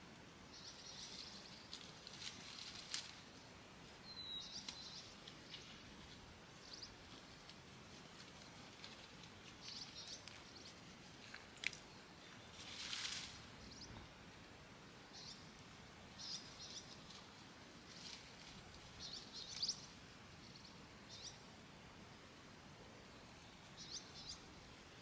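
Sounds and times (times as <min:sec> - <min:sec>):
hissing rustle: 0:00.8 - 0:13.8, 0:16.4 - 0:20.1.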